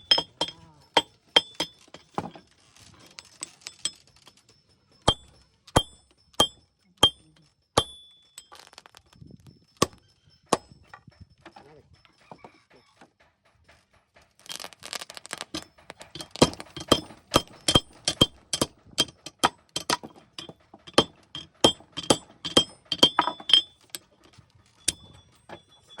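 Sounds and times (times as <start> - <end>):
hammer striking steel on anvil: 0.0 - 2.0, 5.1 - 8.4, 14.4 - 24.0.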